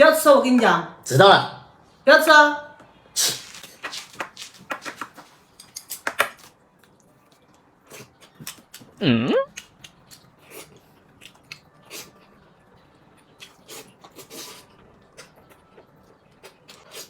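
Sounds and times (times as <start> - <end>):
short vocal sound: 9.0 - 9.5.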